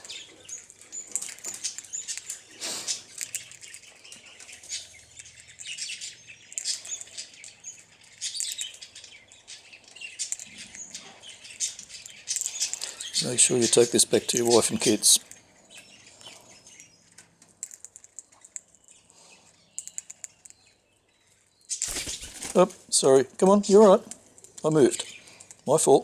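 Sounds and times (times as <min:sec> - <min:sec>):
small birds chirping: 0:00.0 - 0:26.0
parrot husking seeds clicking: 0:00.6 - 0:05.8, 0:19.7 - 0:20.7, 0:21.7 - 0:22.8.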